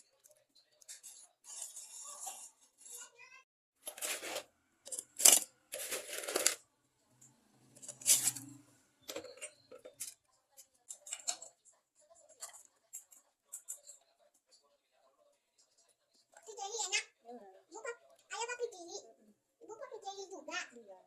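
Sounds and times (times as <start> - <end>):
kitchen utensils scraping and clinking: 0.8 - 6.6, 7.7 - 14.0.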